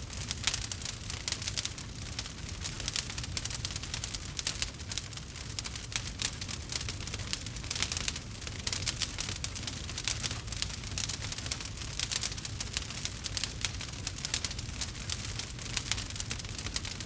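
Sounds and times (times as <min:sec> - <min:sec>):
campfire crackling and popping: 0:00.0 - 0:17.0
low rumble of flames: 0:00.0 - 0:17.0.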